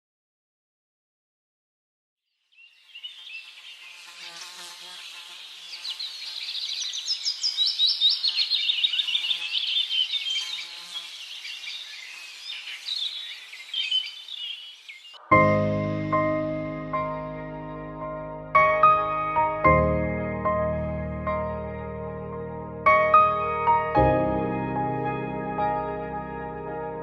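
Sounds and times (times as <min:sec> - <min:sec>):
small birds chirping: 0:02.3 - 0:15.3
faint insect hum: 0:02.5 - 0:15.2.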